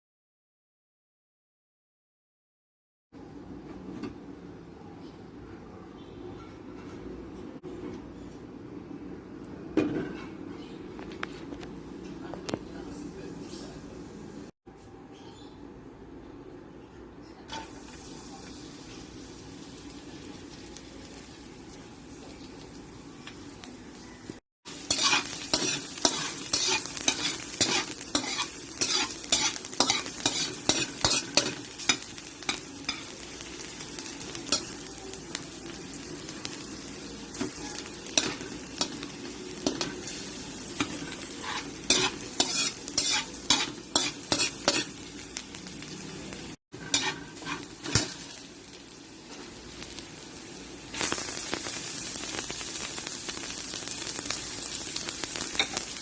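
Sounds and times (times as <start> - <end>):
food sizzling in a pan: 17.5 - 56.0.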